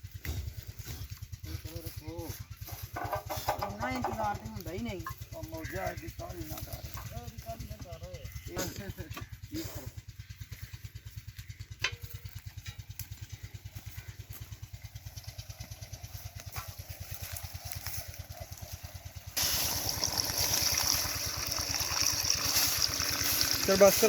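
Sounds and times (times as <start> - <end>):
loud rushing hiss: 19.4 - 20.3.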